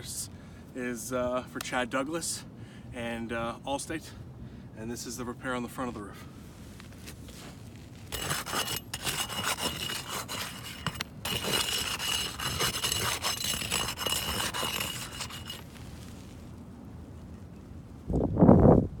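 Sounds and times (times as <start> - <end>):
gritty rubbing and scraping: 6.8 - 16.4.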